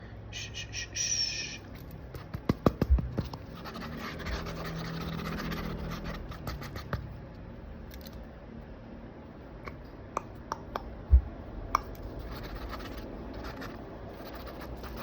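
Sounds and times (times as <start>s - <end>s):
pencil sketching on paper: 3.3s - 7.0s, 12.1s - 15.0s.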